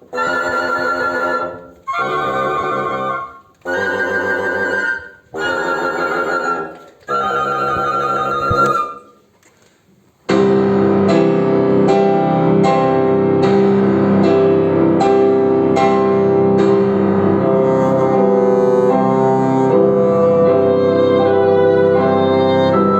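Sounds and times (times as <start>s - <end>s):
wind instruments with vibrato: 0.0s - 9.2s, 17.0s - 22.9s.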